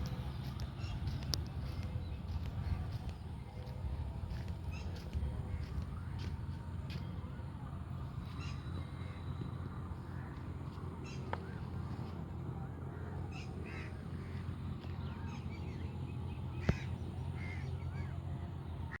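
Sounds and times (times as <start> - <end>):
birds calling: 0.0 - 7.3, 8.0 - 19.0
steady low rumble: 0.0 - 19.0.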